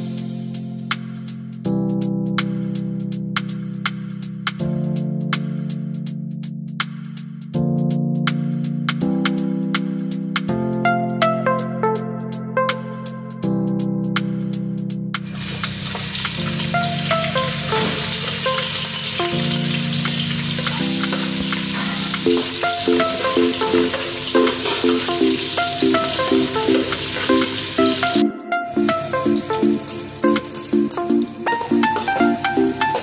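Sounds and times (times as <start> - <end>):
background music: 0.0 - 33.0
onions sizzling in hot oil: 15.3 - 33.0.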